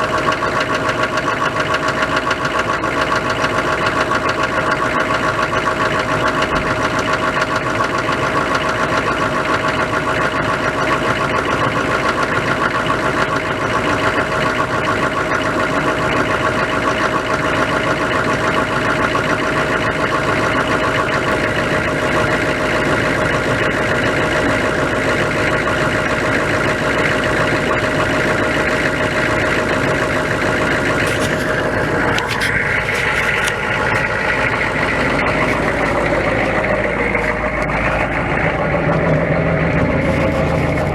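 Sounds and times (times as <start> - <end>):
diesel engine idling: 0.0 - 40.9
steady whine: 19.9 - 40.9.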